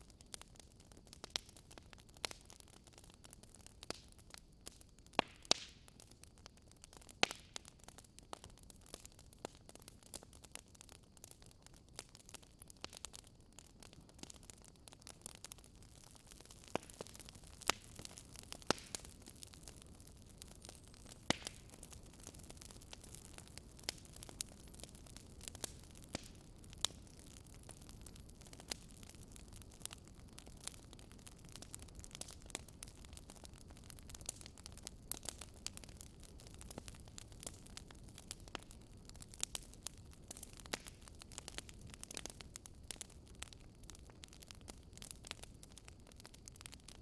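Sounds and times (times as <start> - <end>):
wood fire crackling: 0.0 - 47.0.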